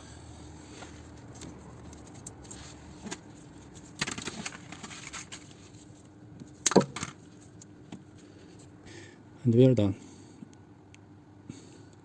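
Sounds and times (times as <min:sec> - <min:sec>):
faint steady hum: 0:00.0 - 0:12.0
rustling scrape: 0:00.6 - 0:06.1.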